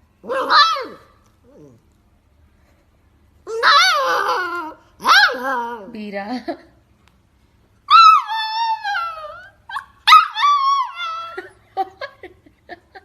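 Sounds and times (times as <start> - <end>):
dog howling: 3.5 - 5.9, 7.9 - 11.4
dog whimpering yips: 3.5 - 5.9, 7.9 - 11.5.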